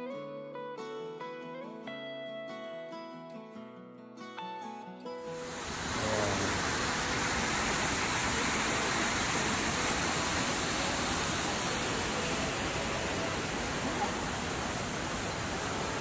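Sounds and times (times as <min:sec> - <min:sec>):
music: 0:00.0 - 0:07.0
waterfall rushing: 0:05.3 - 0:16.0.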